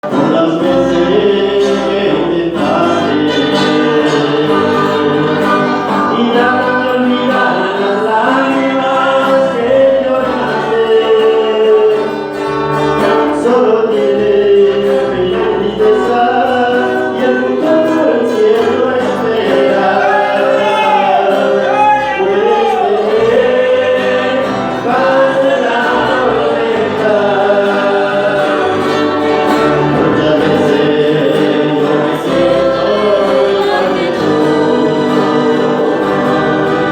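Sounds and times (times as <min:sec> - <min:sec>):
choir-like backing vocals: 0:00.0 - 0:36.9
voices singing a gospel song: 0:00.0 - 0:36.9.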